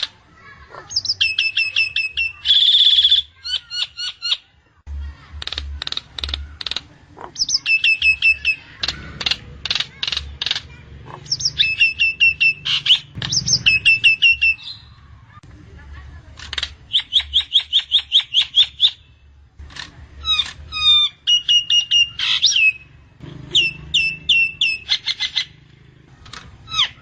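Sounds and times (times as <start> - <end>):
bird clicking notes: 5.3 - 6.9, 7.6 - 10.8.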